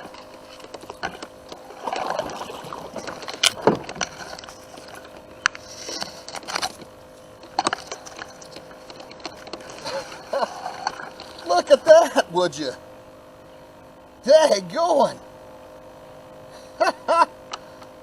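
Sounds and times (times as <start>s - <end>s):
knocks clicks and scrapes in kayak: 0.0s - 11.6s
water splashing: 1.0s - 5.2s.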